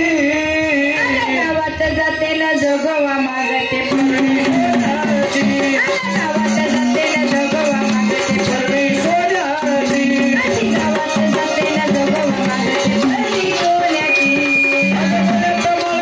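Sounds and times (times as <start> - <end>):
drums beating: 3.7 - 16.0.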